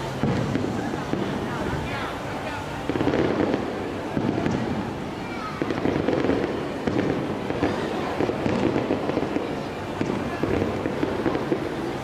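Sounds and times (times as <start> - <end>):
firework shells popping and crackling: 2.8 - 4.9, 5.6 - 12.0.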